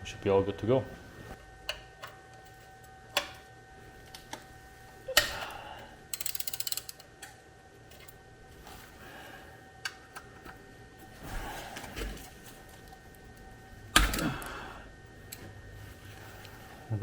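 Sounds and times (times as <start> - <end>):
ratchet wrench clicking: 6.1 - 7.1.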